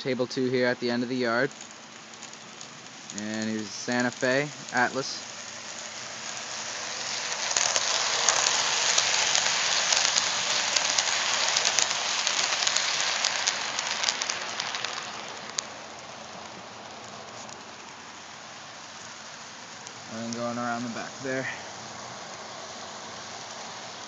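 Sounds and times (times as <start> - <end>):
rail joint clicks: 0.0 - 18.0
model train wheels on rail: 0.0 - 24.0.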